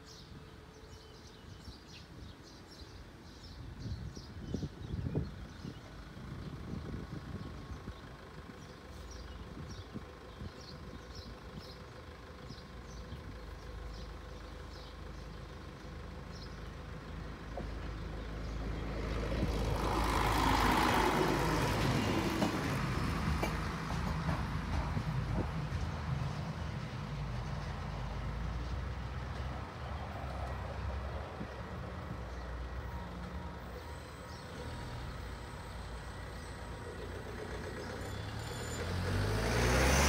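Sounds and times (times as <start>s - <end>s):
train rumbling past: 15.3s - 40.0s.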